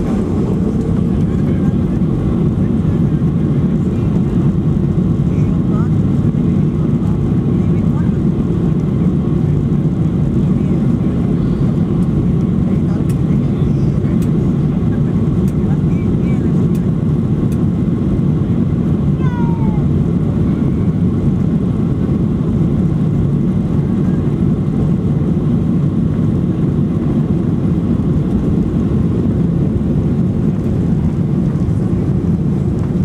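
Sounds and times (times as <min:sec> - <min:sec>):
jet engines low rumble: 0:00.0 - 0:33.0.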